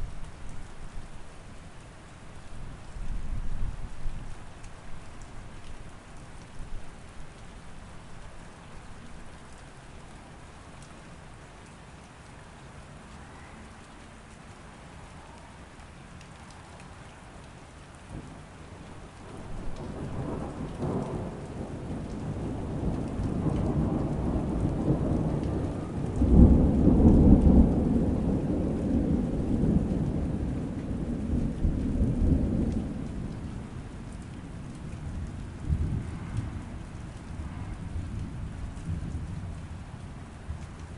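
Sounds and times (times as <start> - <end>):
steady rain: 0.0 - 40.9
rolling thunder: 19.2 - 33.7.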